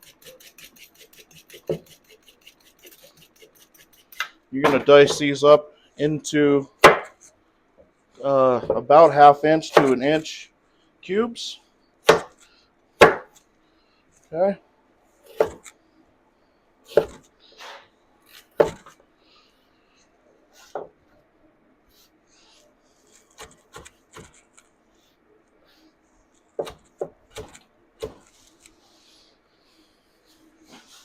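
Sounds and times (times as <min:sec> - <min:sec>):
knife chopping on cutting board: 0:04.2 - 0:05.2, 0:06.8 - 0:07.2, 0:12.0 - 0:12.4, 0:13.0 - 0:13.3, 0:15.3 - 0:15.7, 0:16.9 - 0:17.2, 0:18.6 - 0:18.9, 0:26.6 - 0:28.3.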